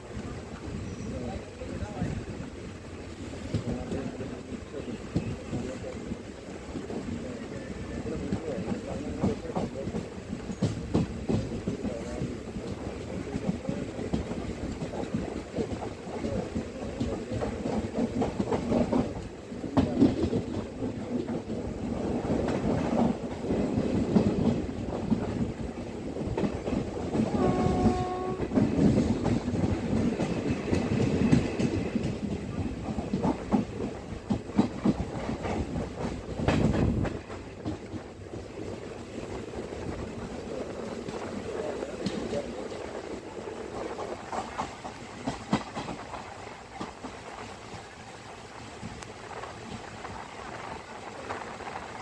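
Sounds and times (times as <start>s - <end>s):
clacks over rail joints: 0.0s - 52.0s
wheels rumbling on rails: 0.0s - 52.0s
train horn: 27.2s - 28.7s.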